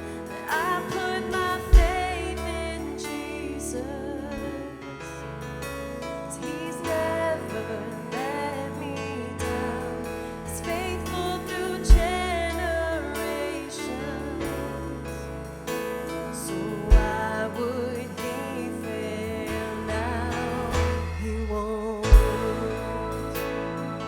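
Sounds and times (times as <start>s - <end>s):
deep loud hits: 0.0s - 3.0s, 9.5s - 13.5s, 14.5s - 17.8s, 19.4s - 24.0s
person singing: 0.0s - 24.0s
worship band playing: 0.0s - 24.0s.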